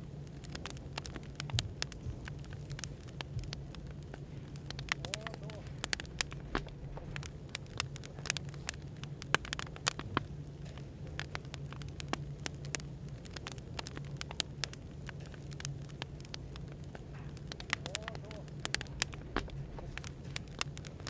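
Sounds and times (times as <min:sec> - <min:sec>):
low background hum: 0:00.0 - 0:21.0
wood fire crackling: 0:00.0 - 0:21.0.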